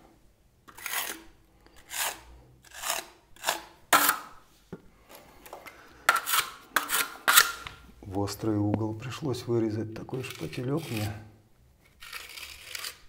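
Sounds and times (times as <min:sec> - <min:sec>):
spatula scraping plaster off wall: 0:00.7 - 0:04.4, 0:06.0 - 0:07.8, 0:10.1 - 0:11.3, 0:11.9 - 0:13.0.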